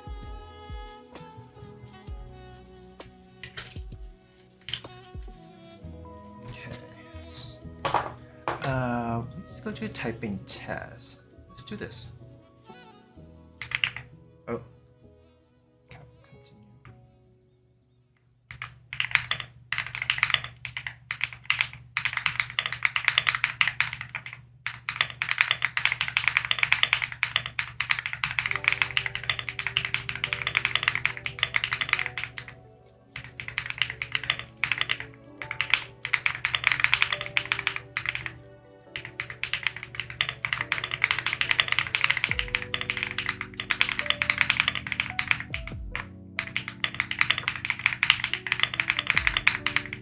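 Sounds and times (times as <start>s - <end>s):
lofi background music: 0.0s - 17.5s, 27.9s - 50.0s
mechanical keyboard typing: 3.4s - 3.9s, 4.6s - 5.0s, 13.6s - 14.1s, 18.5s - 32.6s, 33.2s - 50.0s.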